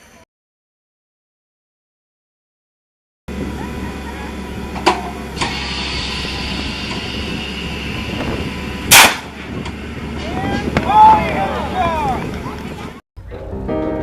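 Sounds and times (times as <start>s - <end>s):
engine running: 3.3s - 13.0s
launcher firing blast: 8.9s - 9.4s.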